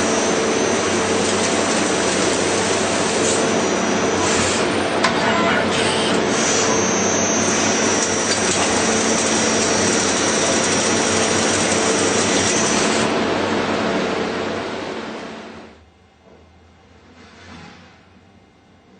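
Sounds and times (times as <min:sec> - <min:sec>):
thin high whine: 0:00.0 - 0:13.2
machine running loudly: 0:00.0 - 0:15.8.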